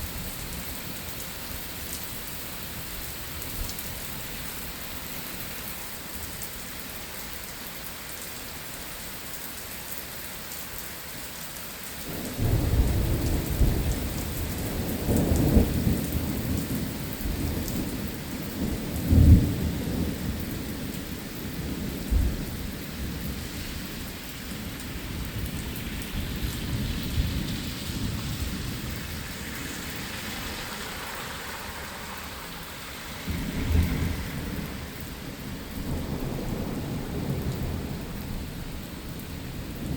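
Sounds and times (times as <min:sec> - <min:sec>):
steady rain: 0:00.0 - 0:39.9
thunder rumbling: 0:12.1 - 0:20.9, 0:32.4 - 0:39.9.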